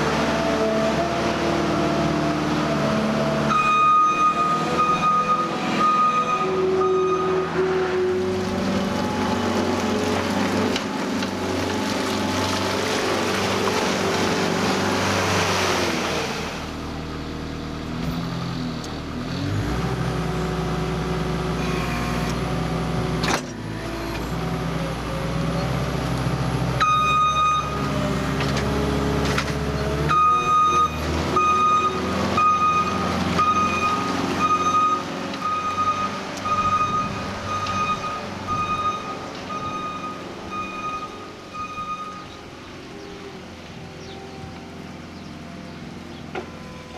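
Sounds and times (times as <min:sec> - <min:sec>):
diesel engine working: 0:00.0 - 0:46.9
reversing alarm beeping: 0:03.5 - 0:07.5, 0:26.8 - 0:27.8, 0:30.1 - 0:42.4.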